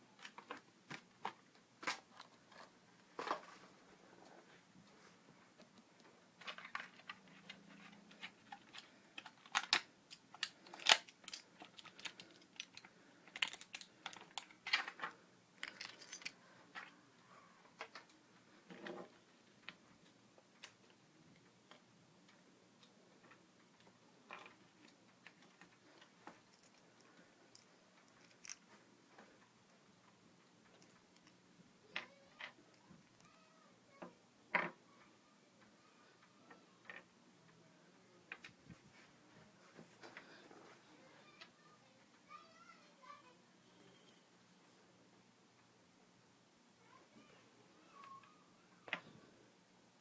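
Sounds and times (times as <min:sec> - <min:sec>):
plastic clicks and crinkles: 0:00.2 - 0:03.6, 0:05.6 - 0:17.0, 0:17.8 - 0:34.8.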